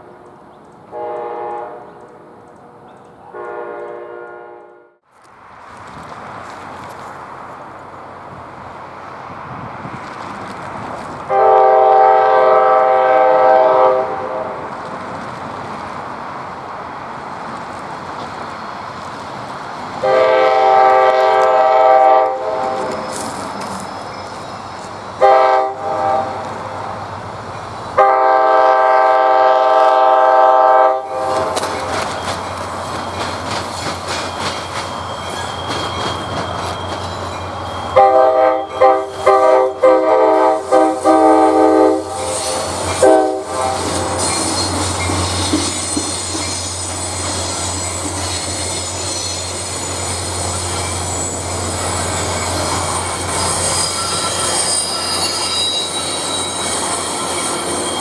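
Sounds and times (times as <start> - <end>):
train air horn blasts: 0.0 - 2.4, 3.3 - 5.0, 11.3 - 14.7, 20.0 - 23.3, 25.2 - 27.2, 28.0 - 32.0, 37.9 - 58.0
train rumble and clatter: 0.0 - 4.4, 5.1 - 58.0
high-pitched wheel squeal: 20.0 - 27.2, 30.9 - 58.0.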